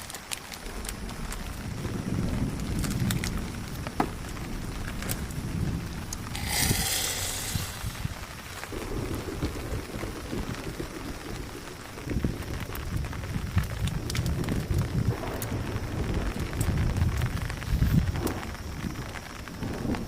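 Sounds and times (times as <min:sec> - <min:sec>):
rain falling: 0:00.0 - 0:20.0
brief hissing rustle: 0:06.4 - 0:08.1.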